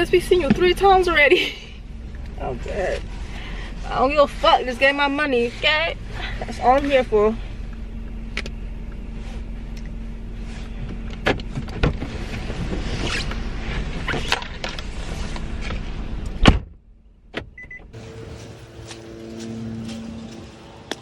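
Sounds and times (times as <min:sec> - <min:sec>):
car cabin hum: 0:00.0 - 0:21.0
car door shutting: 0:10.8 - 0:12.9, 0:15.6 - 0:18.0.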